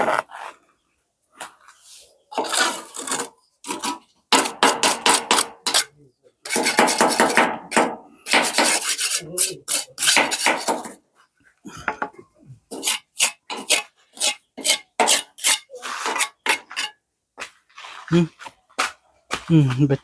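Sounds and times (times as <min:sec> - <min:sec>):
hard objects clattering: 0:02.3 - 0:11.0, 0:11.8 - 0:17.0.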